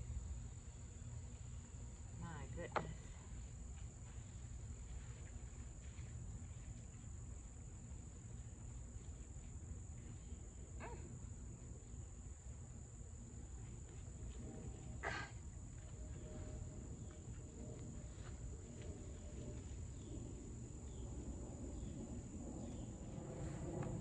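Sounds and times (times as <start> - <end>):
insects droning: 0.0 - 24.0
low steady rumble: 0.0 - 24.0.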